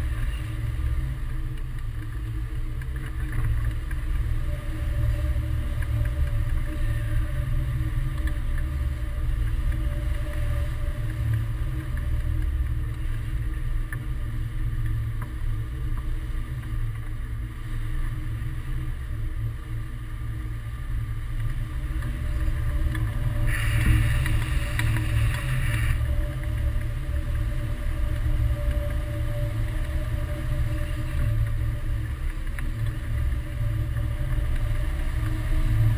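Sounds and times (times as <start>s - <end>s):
wind rushing over microphone: 20.7s - 35.9s.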